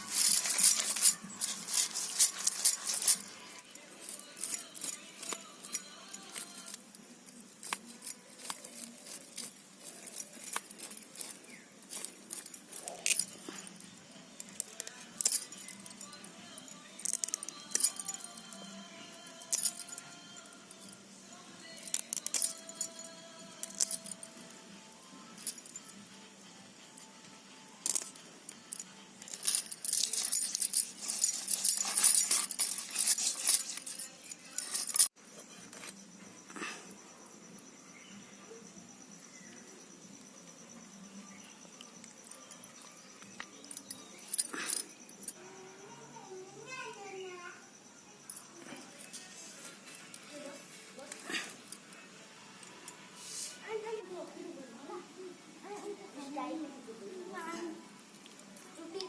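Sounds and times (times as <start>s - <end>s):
small hard objects clinking: 0.0s - 26.0s, 27.7s - 36.0s.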